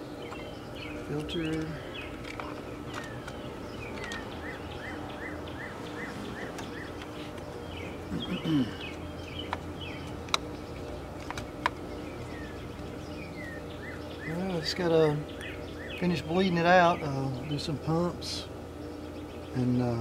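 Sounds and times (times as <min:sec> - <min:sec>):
birds singing: 0:00.0 - 0:20.0
sharp plastic clicks: 0:08.8 - 0:10.6.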